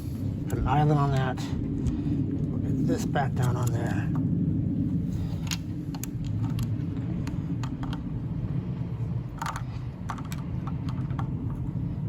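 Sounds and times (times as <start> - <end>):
low rumble: 0.0 - 12.0
small metal parts clicking: 9.3 - 11.4.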